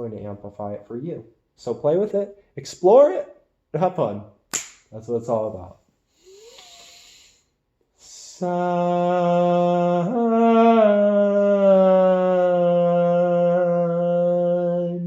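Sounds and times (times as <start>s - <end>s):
soft breathing: 6.0s - 8.4s
person chanting a hummed tone: 8.1s - 15.0s.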